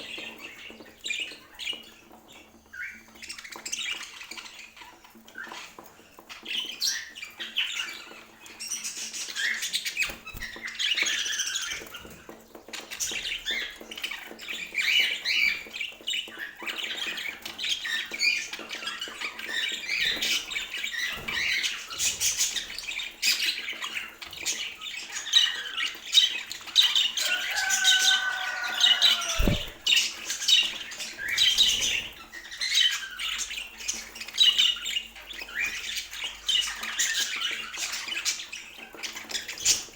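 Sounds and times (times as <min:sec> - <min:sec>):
budgerigars chattering and squawking: 0:12.8 - 0:39.9.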